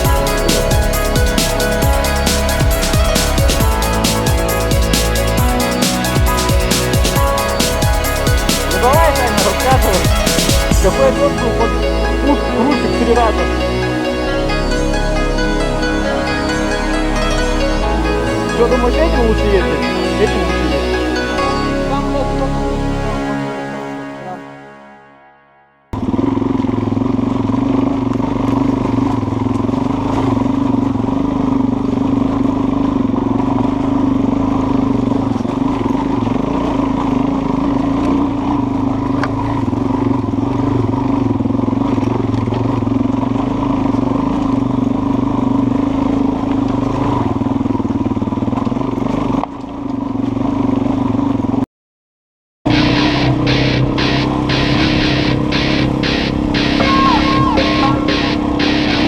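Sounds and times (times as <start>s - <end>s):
dirt bike engine running: 0.0s - 14.0s, 26.0s - 51.6s, 52.7s - 59.0s.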